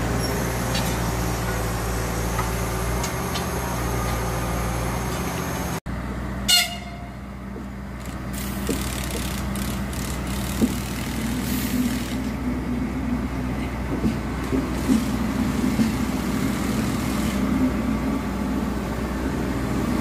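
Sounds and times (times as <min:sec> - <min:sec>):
electric train hum: 0:00.0 - 0:20.0
train horn toot: 0:06.5 - 0:07.2.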